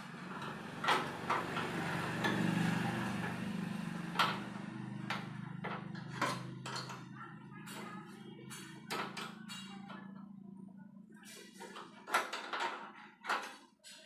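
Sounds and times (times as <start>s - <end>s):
metal tools knocking and clinking: 5.1s - 7.1s.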